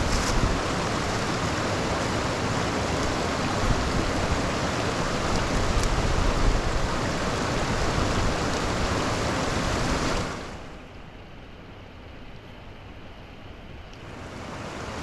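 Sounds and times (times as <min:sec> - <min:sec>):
rushing floodwater: 0:00.0 - 0:15.0.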